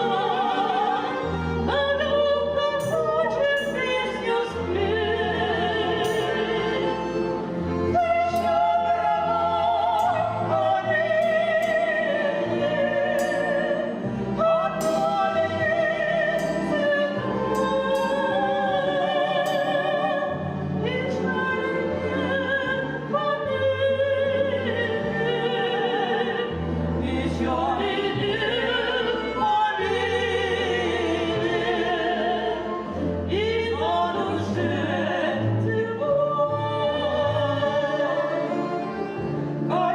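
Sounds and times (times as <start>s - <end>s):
instrumental accompaniment: 0.0s - 39.9s
two women singing in duet: 0.0s - 39.9s.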